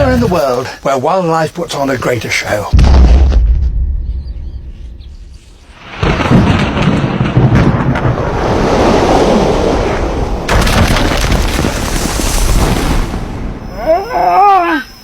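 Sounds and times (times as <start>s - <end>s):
boom: 2.7s - 4.8s, 5.8s - 14.0s
loud rushing rumble: 7.3s - 10.8s.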